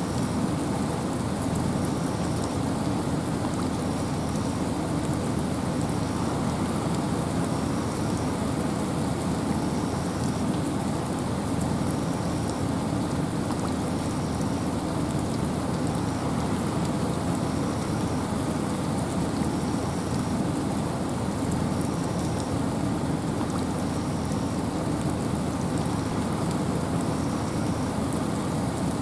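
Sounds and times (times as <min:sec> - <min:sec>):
rain and wind in forest: 0:00.0 - 0:29.0.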